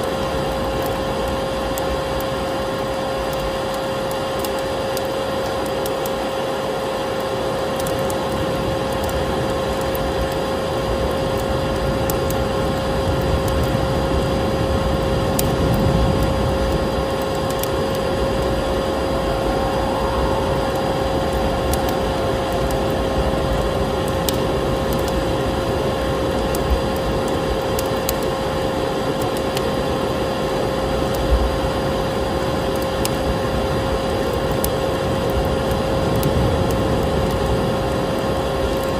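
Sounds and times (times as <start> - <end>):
wood fire crackling: 0.0 - 38.9
vacuum cleaner humming: 17.4 - 27.2.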